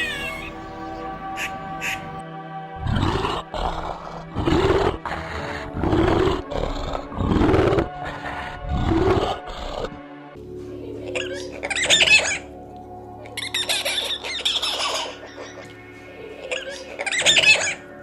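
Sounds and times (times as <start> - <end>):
background music: 0.0 - 18.0
big cat roaring: 2.8 - 10.0.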